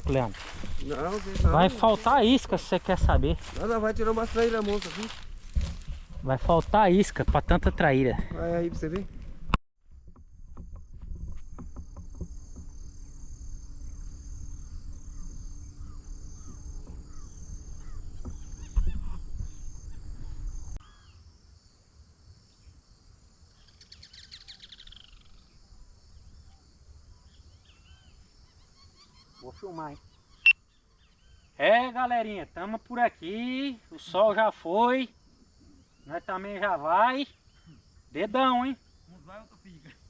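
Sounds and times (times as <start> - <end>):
insects chirping: 0.0 - 9.0, 10.6 - 40.0
bird chirps: 23.6 - 25.6, 26.2 - 31.6.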